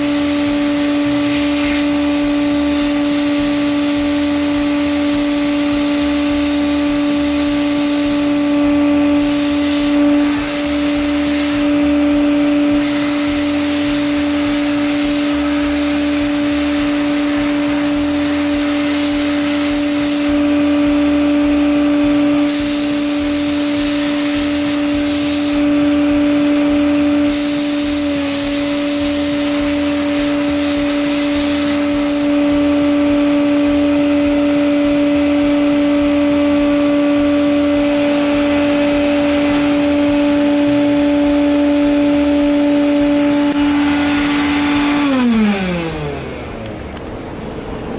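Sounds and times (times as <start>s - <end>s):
hiss of blasting air: 0.0s - 11.8s, 12.7s - 20.4s, 22.4s - 25.7s, 27.2s - 32.4s
machine hum: 0.0s - 47.9s.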